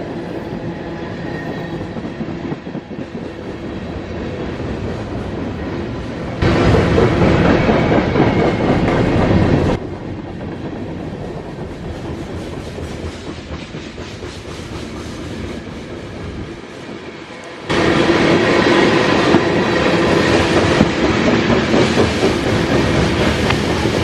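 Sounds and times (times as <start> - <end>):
freight train rolling past: 0.0 - 24.0.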